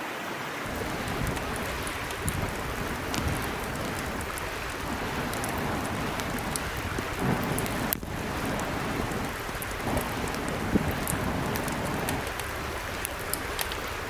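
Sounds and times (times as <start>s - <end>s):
stream running: 0.0s - 14.0s
small sharp ticks: 0.7s - 14.0s.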